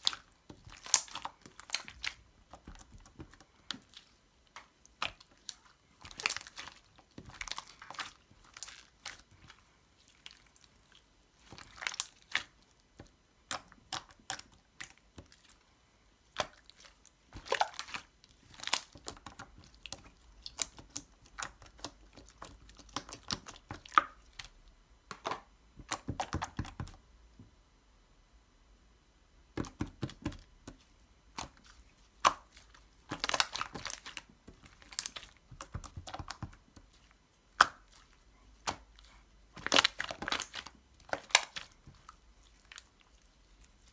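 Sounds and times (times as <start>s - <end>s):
crunching and crinkling: 0.0s - 15.6s, 16.3s - 26.0s, 29.6s - 43.9s.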